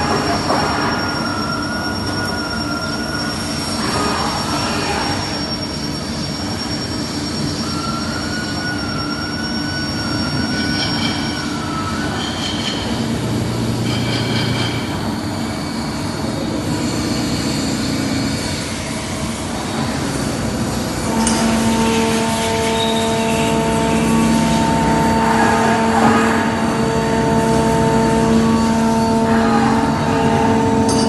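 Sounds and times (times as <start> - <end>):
thin wavering high tone: 0.8 - 4.0, 5.1 - 12.9, 20.8 - 31.0
lathe running: 16.7 - 31.0.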